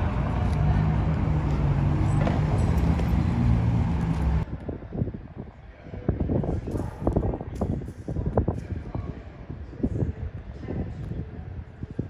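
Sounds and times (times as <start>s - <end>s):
vehicle engine running: 0.0s - 4.4s
street noise: 0.0s - 12.0s.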